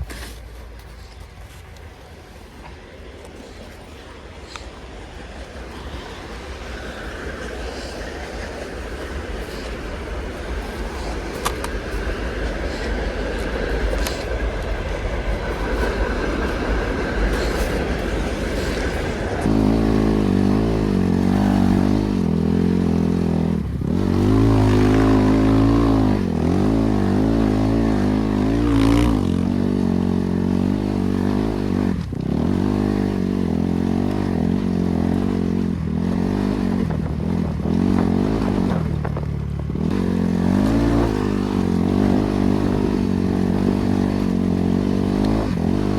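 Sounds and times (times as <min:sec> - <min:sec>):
rough wind noise: 0:00.0 - 0:45.9
motorcycle engine revving: 0:03.4 - 0:45.9.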